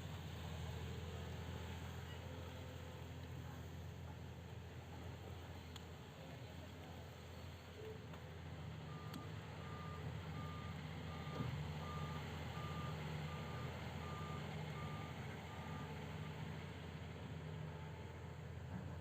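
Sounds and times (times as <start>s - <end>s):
diesel engine rumble: 0.0s - 19.0s
excavator travel alarm beeping: 8.8s - 16.0s.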